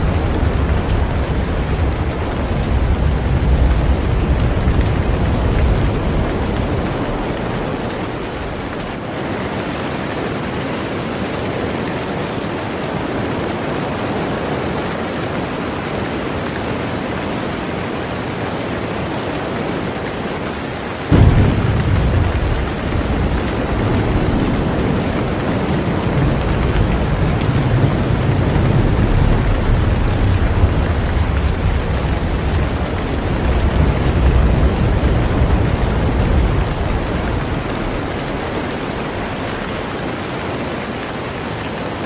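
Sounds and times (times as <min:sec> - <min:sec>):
heavy rain on a boat: 0:00.0 - 0:42.0
deep low rumble: 0:21.1 - 0:39.4.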